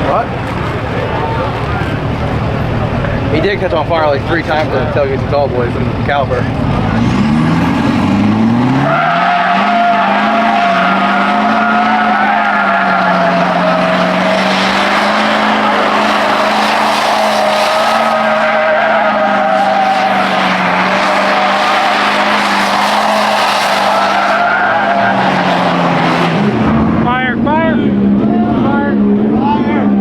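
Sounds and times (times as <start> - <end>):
truck engine revving: 0.0 - 30.0
tyres squealing: 7.8 - 26.4.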